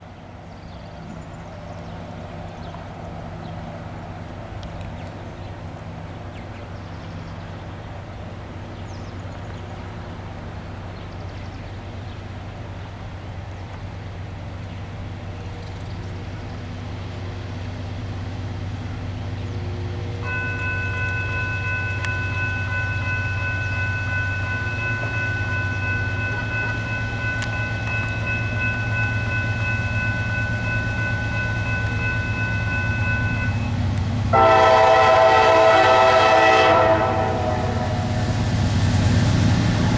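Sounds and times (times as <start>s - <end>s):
train rumbling: 0.0s - 39.9s
locomotive horn blast: 19.9s - 38.7s.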